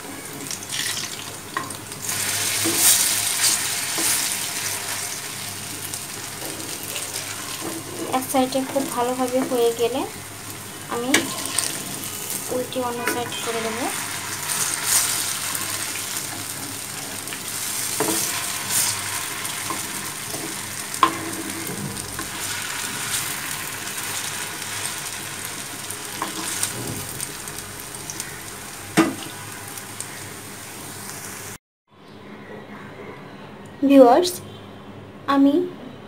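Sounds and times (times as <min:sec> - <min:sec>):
fritters sizzling in hot oil: 0:00.0 - 0:31.6
metal spatula scraping pan: 0:11.1 - 0:23.4.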